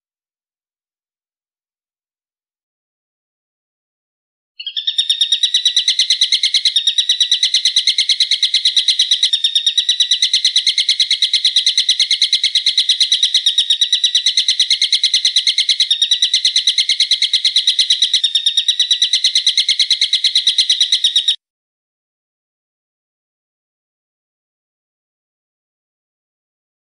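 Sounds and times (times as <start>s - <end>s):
songbird chattering call: 4.6s - 21.4s.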